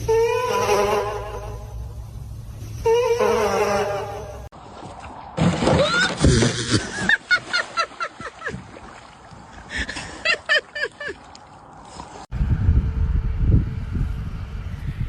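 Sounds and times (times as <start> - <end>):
low rumble: 12.3 - 15.0.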